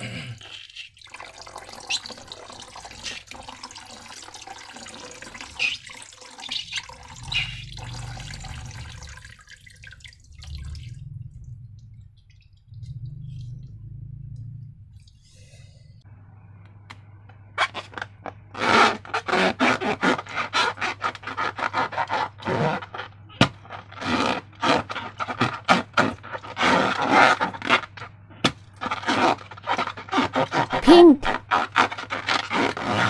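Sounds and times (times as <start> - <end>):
slime squelching and scraping: 0.4 - 3.7, 4.6 - 9.4, 17.6 - 33.0
slime squeak: 1.8 - 2.3, 5.3 - 8.4, 28.8 - 33.0.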